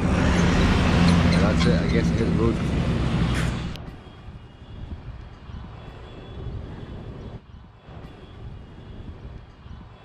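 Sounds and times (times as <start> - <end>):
motorcycle engine and road noise: 0.0 - 10.0
wind rumbling on microphone: 2.2 - 10.0.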